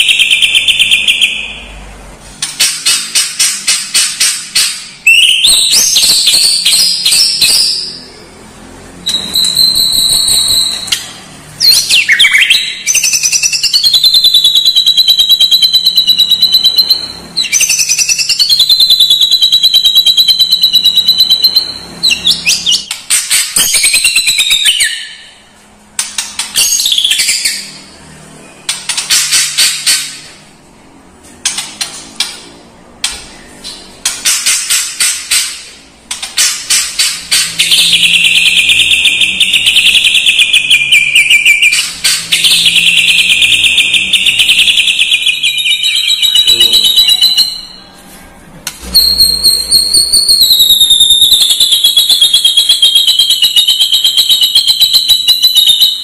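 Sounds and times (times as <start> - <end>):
bird singing rapid trills: 9.0 - 25.4, 36.3 - 47.9, 49.0 - 56.0.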